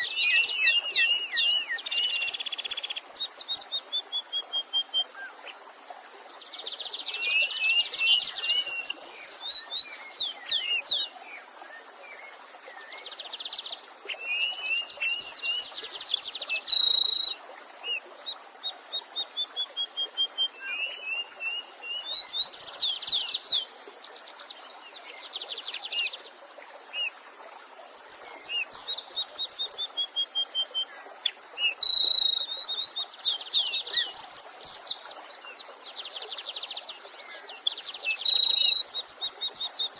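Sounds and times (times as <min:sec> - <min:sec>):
faint stream rushing: 0:00.0 - 0:39.9
songbirds chirping and trilling: 0:00.0 - 0:39.9.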